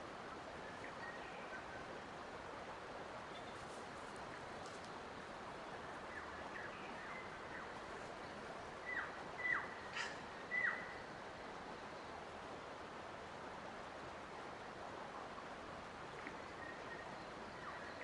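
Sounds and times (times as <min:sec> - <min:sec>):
steady rushing hiss: 0:00.0 - 0:18.0
bird calling: 0:08.8 - 0:11.1.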